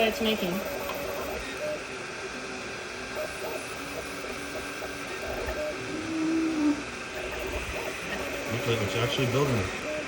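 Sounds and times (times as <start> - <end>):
stepper motors whirring: 3.1 - 10.0.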